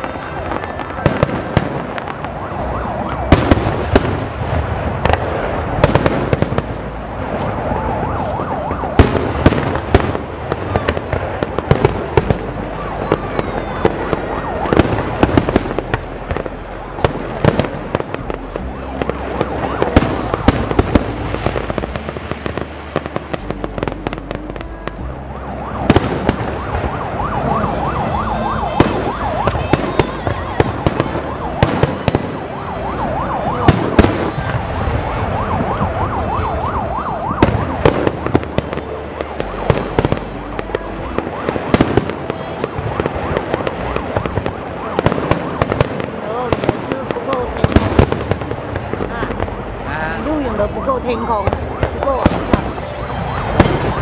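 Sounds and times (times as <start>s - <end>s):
wavering firework whistles: 0.0s - 24.2s, 25.0s - 49.1s, 50.5s - 54.0s
firework bangs: 0.0s - 54.0s
steady rumble: 37.4s - 54.0s.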